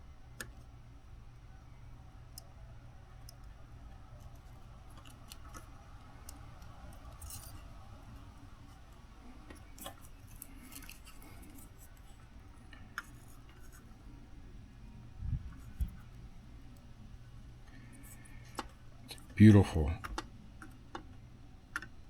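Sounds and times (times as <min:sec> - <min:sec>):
small tools clicking and scraping: 0:06.3 - 0:07.7, 0:09.5 - 0:12.2.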